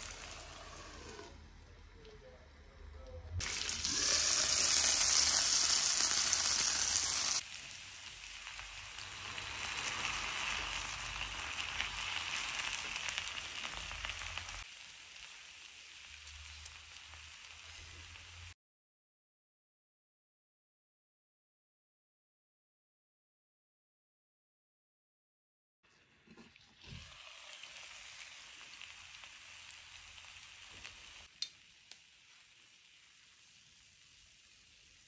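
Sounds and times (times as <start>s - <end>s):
chicken sizzling in hot oil: 0.0s - 1.3s, 3.4s - 18.6s, 25.9s - 35.0s.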